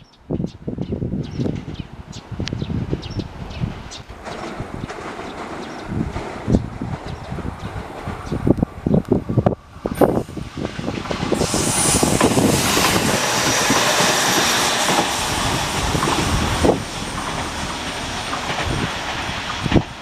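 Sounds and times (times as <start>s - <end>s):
train wheels clattering over rail joints: 3.6s - 9.0s, 10.0s - 20.0s
high flange squeal: 10.0s - 19.0s.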